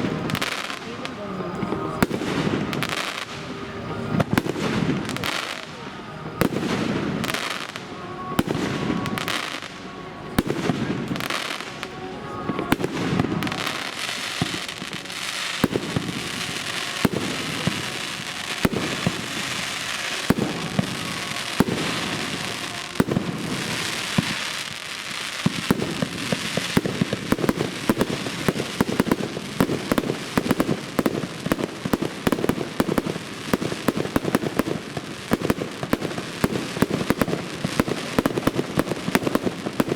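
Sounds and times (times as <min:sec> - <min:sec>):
fireworks crackling and popping: 0:00.0 - 0:39.9
firework shells booming: 0:12.7 - 0:39.9.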